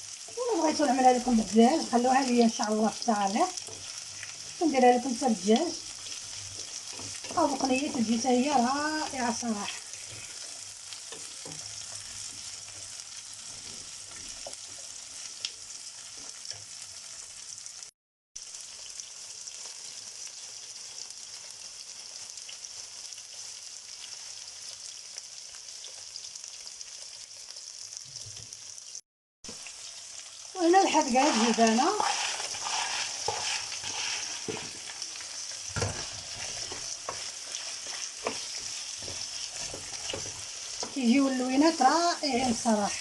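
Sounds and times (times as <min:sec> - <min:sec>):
vegetables sizzling in oil: 0:00.0 - 0:43.0
light stirring knocks: 0:06.0 - 0:08.3, 0:31.3 - 0:41.1.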